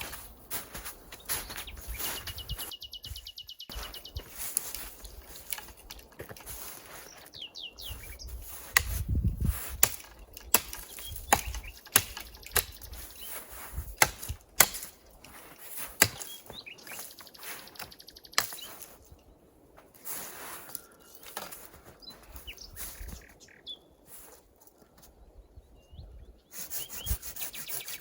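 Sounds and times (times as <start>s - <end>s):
bird chirping: 1.1s - 5.9s, 6.8s - 9.2s, 10.0s - 13.6s, 16.0s - 19.4s, 20.8s - 24.0s, 25.2s - 28.0s
sharp irregular cracks and knocks: 4.5s - 6.6s, 9.8s - 13.2s, 13.9s - 18.9s.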